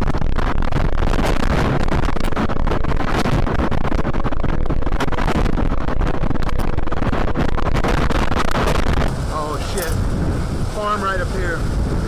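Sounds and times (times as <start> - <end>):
strong wind buffeting microphone: 0.1 - 12.0.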